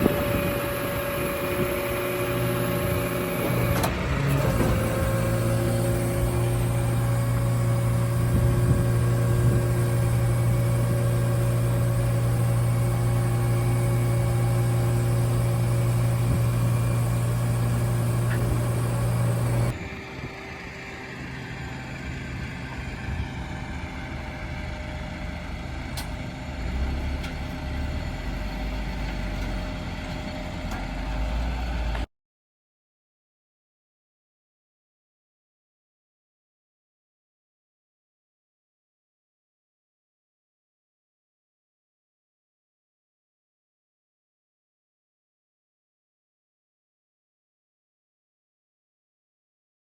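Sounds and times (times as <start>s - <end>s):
tow truck running hum: 0.0s - 32.1s.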